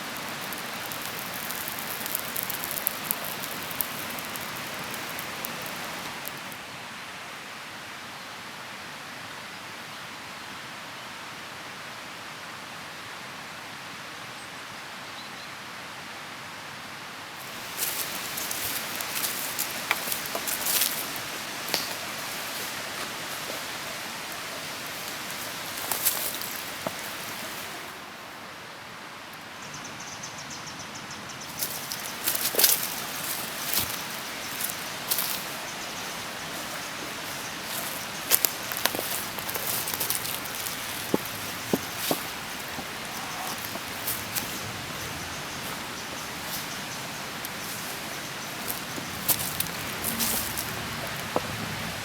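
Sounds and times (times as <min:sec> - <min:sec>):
rustling: 0:00.0 - 0:06.6, 0:17.4 - 0:28.1, 0:31.5 - 0:52.0
steady rain: 0:00.0 - 0:14.3, 0:16.0 - 0:29.6, 0:31.5 - 0:52.0.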